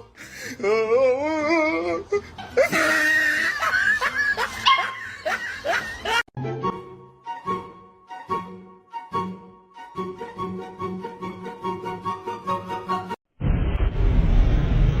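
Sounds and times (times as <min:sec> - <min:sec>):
music: 0:01.6 - 0:13.2
people laughing: 0:02.1 - 0:06.2.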